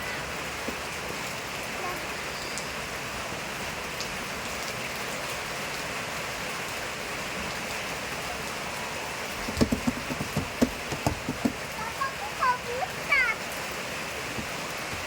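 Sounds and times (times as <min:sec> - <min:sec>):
steady rain hiss: 0:00.0 - 0:15.0
sharp knocks: 0:09.5 - 0:11.7.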